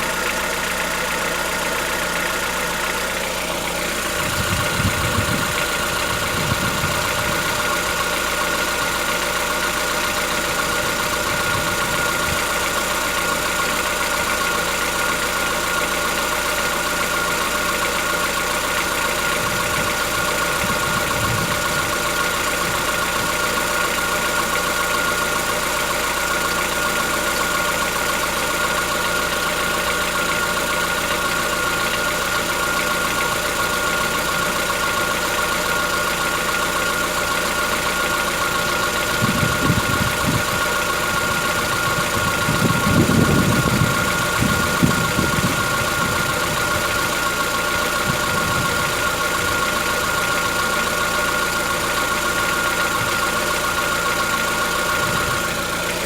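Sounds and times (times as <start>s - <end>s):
car engine idling with knocking clatter: 0.0s - 56.0s
low rumbles: 3.4s - 7.9s, 39.0s - 50.4s.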